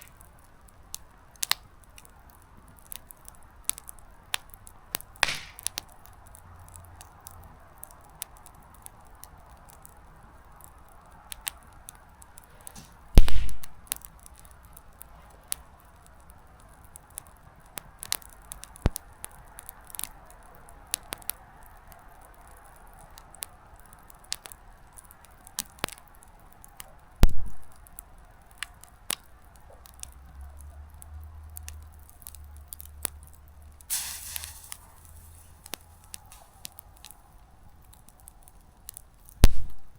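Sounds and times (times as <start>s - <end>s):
campfire crackling: 0.0s - 39.9s
loud pops of bursting wood: 2.8s - 10.0s, 11.3s - 15.7s, 33.8s - 39.9s
hiss of flame: 33.9s - 37.2s.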